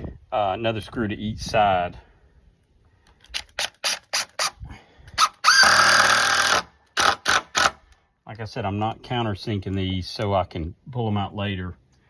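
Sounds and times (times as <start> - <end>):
power drill running: 5.2 - 7.8.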